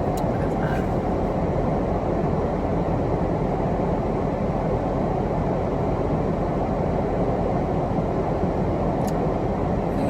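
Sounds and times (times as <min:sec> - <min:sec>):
car engine idling: 0:00.0 - 0:01.4.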